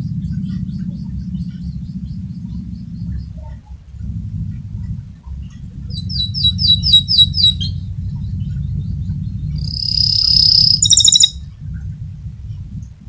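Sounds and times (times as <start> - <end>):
low background rumble: 0.0 - 13.0
canary singing: 5.9 - 11.4.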